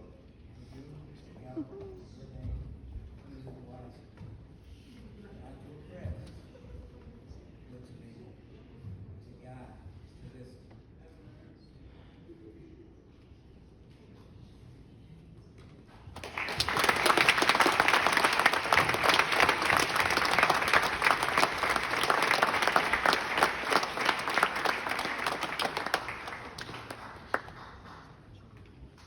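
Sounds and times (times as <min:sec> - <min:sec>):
single clap: 0:16.2 - 0:28.2
audience applauding: 0:16.2 - 0:28.5.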